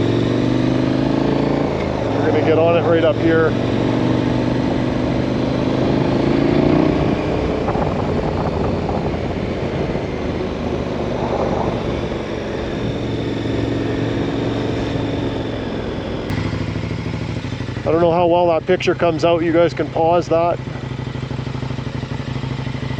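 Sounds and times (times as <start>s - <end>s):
motorcycle engine running: 0.0s - 22.9s
wind noise: 1.9s - 16.3s.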